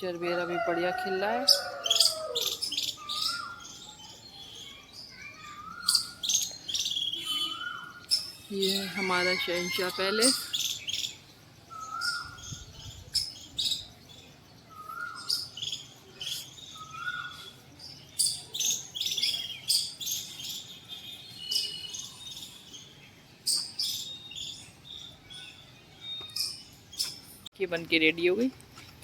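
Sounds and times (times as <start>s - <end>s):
birds chirping: 0.0s - 29.0s
low rising and falling bird calls: 4.7s - 20.4s.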